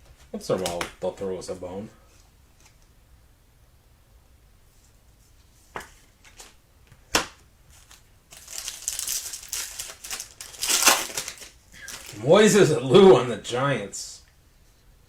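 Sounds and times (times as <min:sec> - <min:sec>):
foil wrapper crinkling and tearing: 0:07.7 - 0:12.2.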